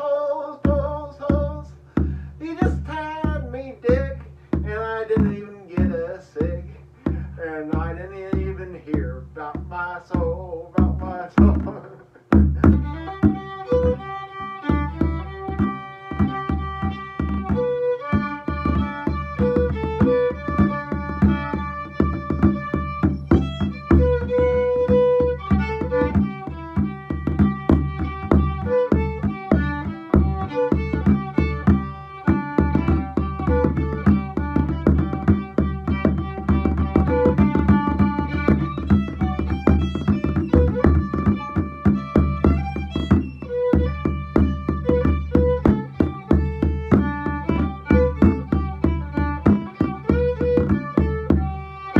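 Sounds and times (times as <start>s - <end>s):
steady bodhran beat: 0.6s - 51.9s
fiddle playing quick melody: 12.6s - 51.9s.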